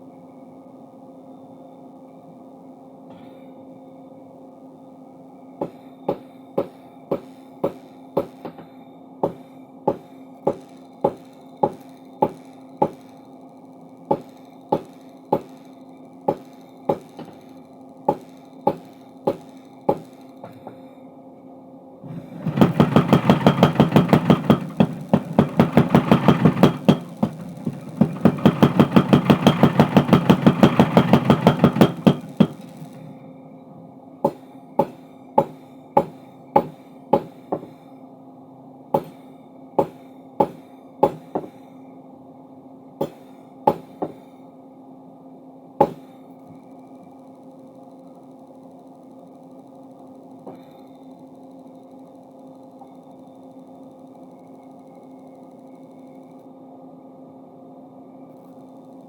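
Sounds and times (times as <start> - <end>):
steady motor hum: 2.5 - 59.0
power hammer striking metal: 5.6 - 13.1, 14.1 - 15.6, 16.3 - 17.4, 18.1 - 20.8, 22.1 - 33.0, 34.2 - 37.8, 39.0 - 41.6, 43.0 - 44.3, 45.8 - 46.1.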